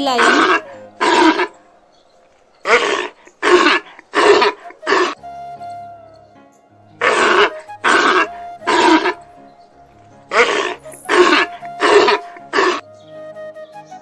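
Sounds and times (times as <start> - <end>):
sea lion barking: 0.0 - 1.9, 2.6 - 5.2, 7.0 - 9.3, 10.3 - 12.8
soft background music: 0.0 - 14.0.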